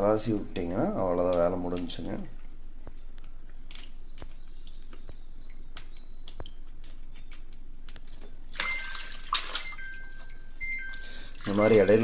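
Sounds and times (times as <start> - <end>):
washing machine clicks and chirps: 3.9 - 8.0, 8.6 - 12.0
washing machine alert beep: 8.6 - 12.0.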